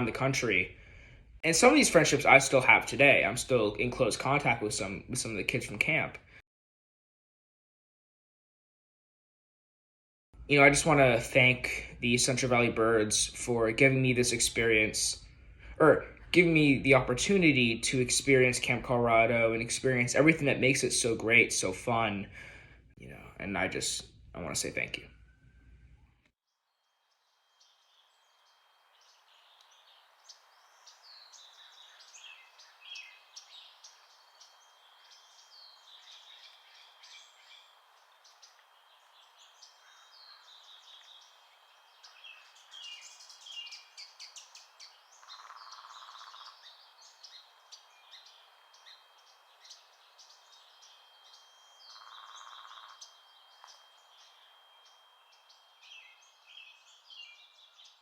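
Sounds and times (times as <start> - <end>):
small birds chirping and trilling: 23.6 - 58.0
buzzy bird calls: 27.6 - 58.0.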